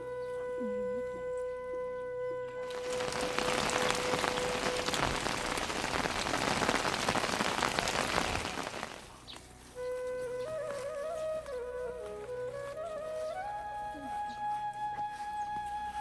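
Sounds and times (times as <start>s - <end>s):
rain hitting a surface: 2.6s - 9.2s.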